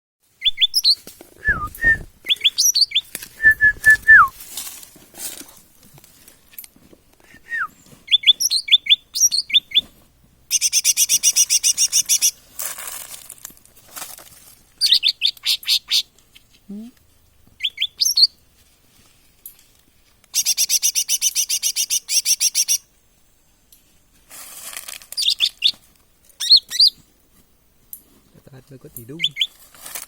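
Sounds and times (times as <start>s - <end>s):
songbird singing: 0.4s - 4.4s, 7.3s - 9.9s, 10.5s - 12.4s, 14.8s - 16.1s, 17.2s - 18.4s, 20.3s - 22.9s, 28.9s - 29.6s.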